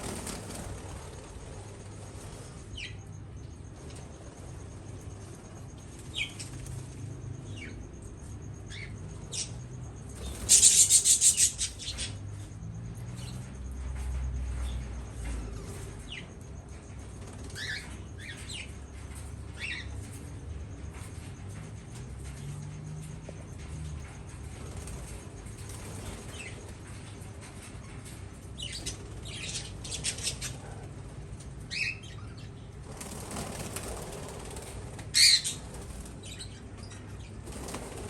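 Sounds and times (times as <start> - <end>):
loud wing flapping: 0.0 - 1.9, 32.9 - 36.0
small birds chirping: 0.0 - 4.1, 4.9 - 21.6, 23.6 - 38.0.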